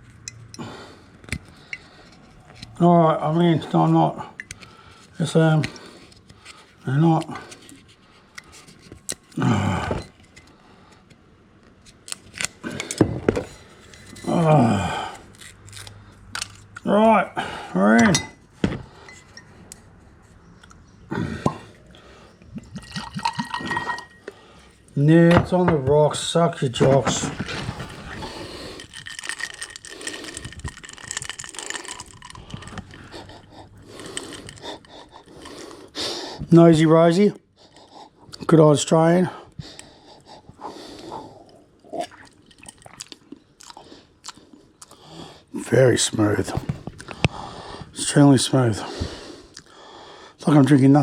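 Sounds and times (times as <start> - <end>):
man groaning: 9.4 - 10.0, 14.2 - 15.2
bottle and glass clicks and scrapes: 22.6 - 24.4, 26.7 - 35.6.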